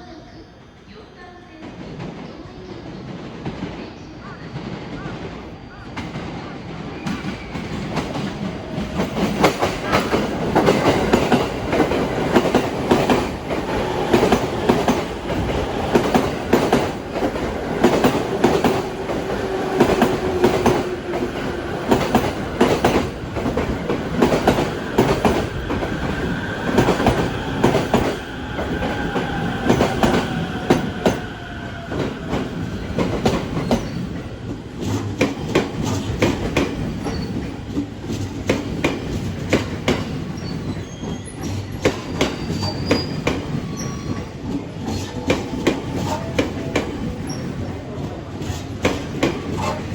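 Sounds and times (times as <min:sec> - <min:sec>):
train wheels clacking over rail joints: 0:06.0 - 0:31.3, 0:31.9 - 0:49.9.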